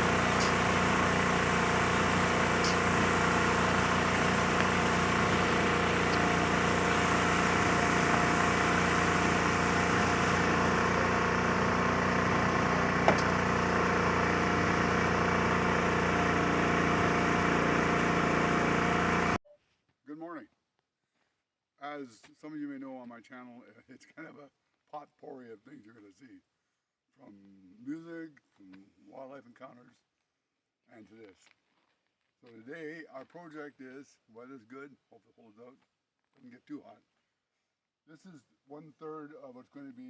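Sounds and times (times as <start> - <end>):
small engine running: 0.0 - 19.4.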